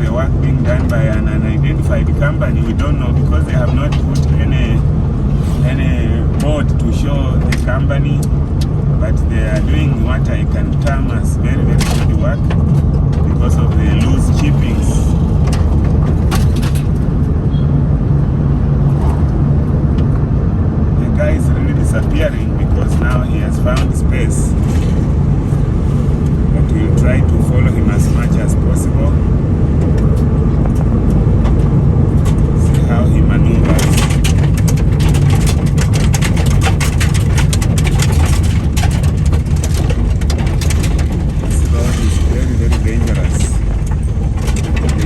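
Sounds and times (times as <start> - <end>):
car road rumble from inside: 0.0 - 45.0
stone chippings ticking against car: 33.6 - 45.0.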